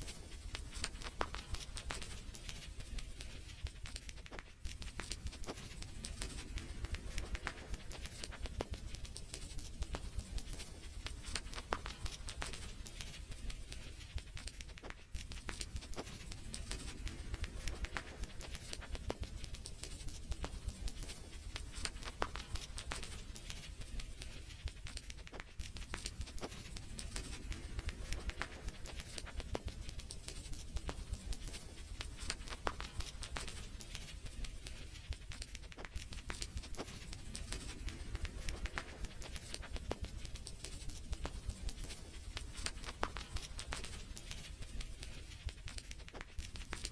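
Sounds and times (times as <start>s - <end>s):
wood fire crackling: 0.0s - 46.9s.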